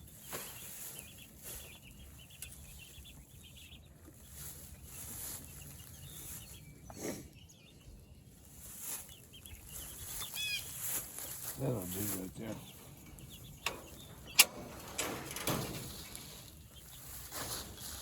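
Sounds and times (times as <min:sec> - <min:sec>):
chickens peeping and clucking: 0:00.0 - 0:18.0.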